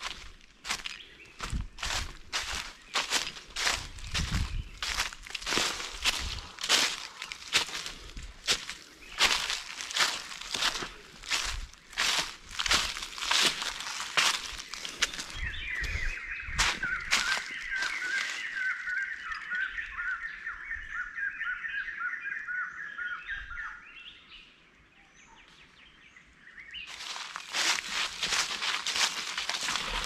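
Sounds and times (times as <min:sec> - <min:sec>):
footsteps crunching dry leaves: 0:00.0 - 0:19.6, 0:26.9 - 0:30.0.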